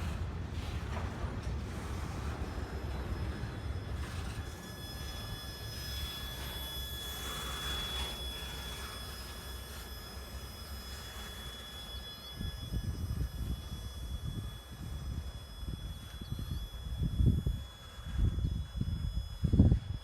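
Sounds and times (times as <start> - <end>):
high-pitched wheel squeal: 2.0 - 20.0.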